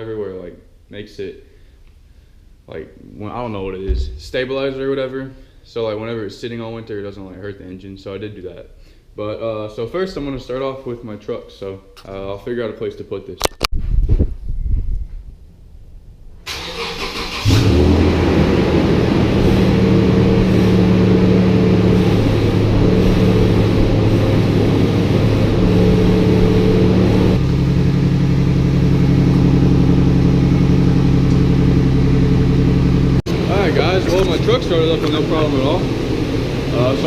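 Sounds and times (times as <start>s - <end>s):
engine idling: 16.5s - 37.0s.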